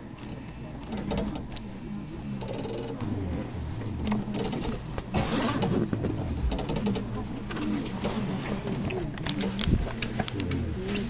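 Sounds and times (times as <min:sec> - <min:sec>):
scattered clicks: 0:00.0 - 0:08.2, 0:08.8 - 0:11.0
train equipment running: 0:02.4 - 0:11.0.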